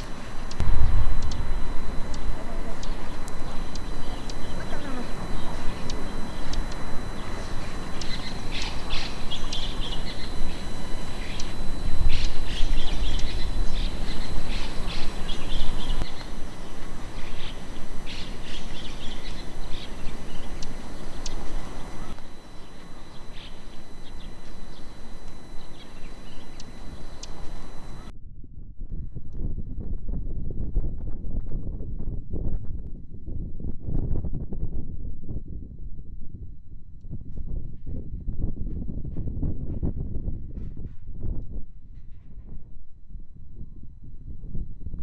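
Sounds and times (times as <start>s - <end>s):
wild birds chirping: 0.0s - 28.1s
low outdoor rumble: 0.0s - 33.7s.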